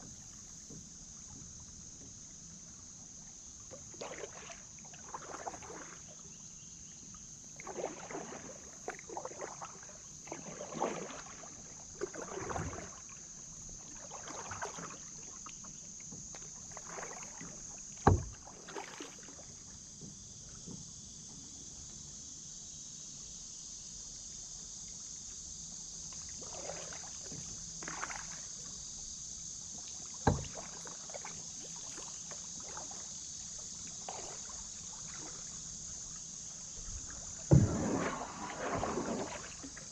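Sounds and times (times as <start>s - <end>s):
paddle splashing in water: 3.4s - 20.9s, 26.1s - 39.9s.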